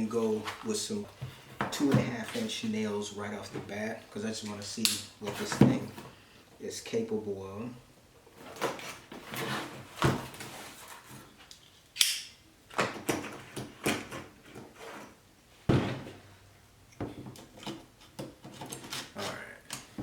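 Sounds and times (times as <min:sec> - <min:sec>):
sharp snap: 0:12.0 - 0:12.4.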